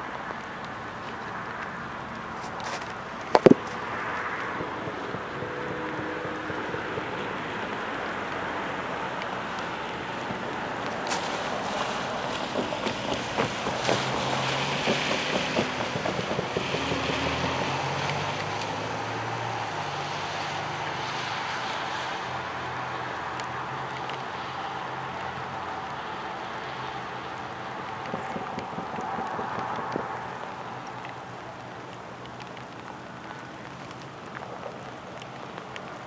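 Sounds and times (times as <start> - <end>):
freight train rumbling: 10.0 - 18.0.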